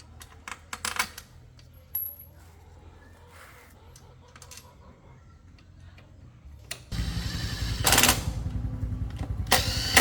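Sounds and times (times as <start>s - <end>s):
motorcycle engine running: 6.9s - 10.0s.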